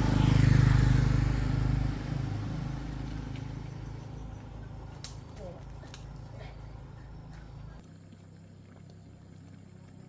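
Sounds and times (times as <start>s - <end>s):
vehicle engine passing by: 0.0s - 7.8s.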